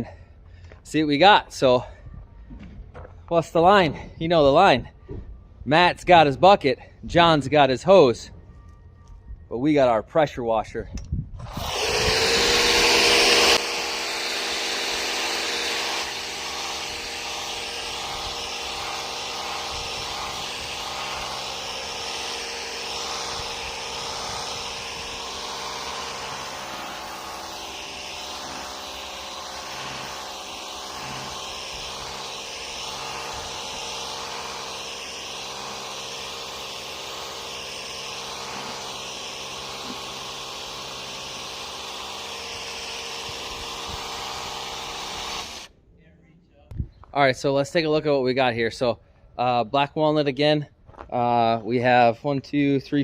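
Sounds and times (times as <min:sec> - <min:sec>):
pressure washer running: 0:11.4 - 0:45.7.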